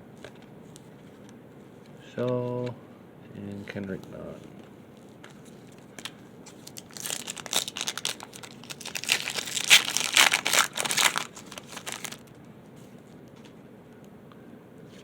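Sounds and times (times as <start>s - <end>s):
plastic wrapper crinkling and tearing: 5.3s - 12.3s.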